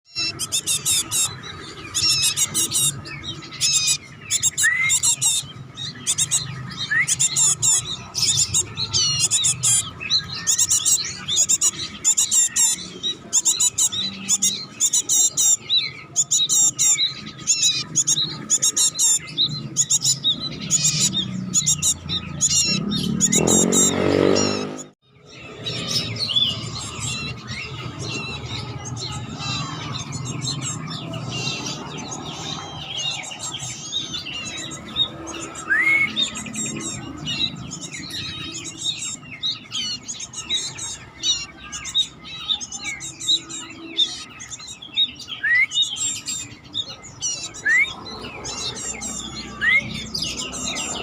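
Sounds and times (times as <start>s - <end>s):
young bird chirping rapidly: 0.1s - 51.0s.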